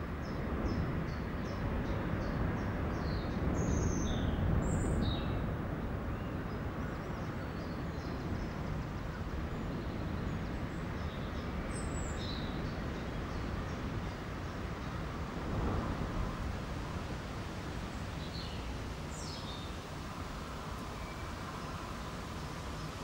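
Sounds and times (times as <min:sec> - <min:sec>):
steady background noise: 0:00.0 - 0:23.0
small birds chirping: 0:17.6 - 0:23.0.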